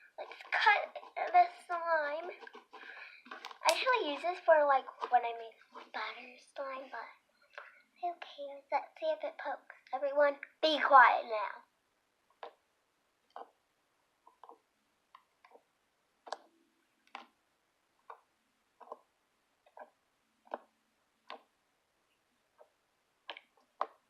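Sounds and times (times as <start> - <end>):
slime squishing: 13.3 - 13.6, 14.2 - 17.4, 18.0 - 21.6.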